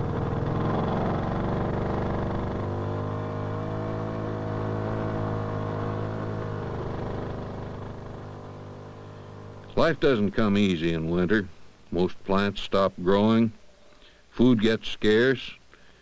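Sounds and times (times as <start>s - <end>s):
old vehicle engine running: 0.0s - 10.2s.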